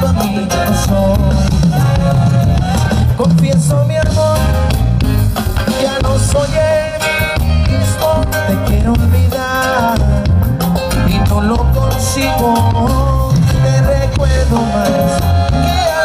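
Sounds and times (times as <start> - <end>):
band playing cumbia: 0.0 - 16.0.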